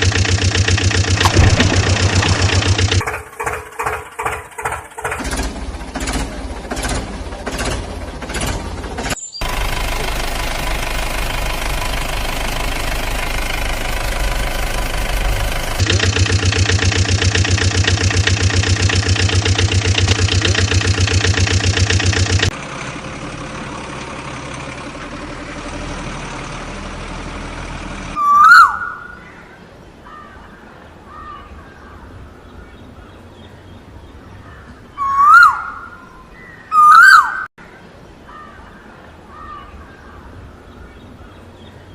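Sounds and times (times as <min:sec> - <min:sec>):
vehicle engine chugging: 0:00.0 - 0:28.2
loud rising and falling calls: 0:01.0 - 0:03.1, 0:28.2 - 0:29.4, 0:34.9 - 0:37.5.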